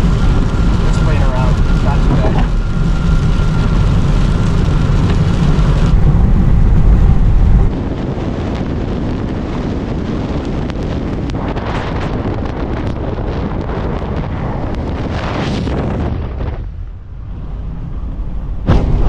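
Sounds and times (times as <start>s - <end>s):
road noise: 0.0s - 18.7s
wind buffeting car: 0.0s - 19.0s.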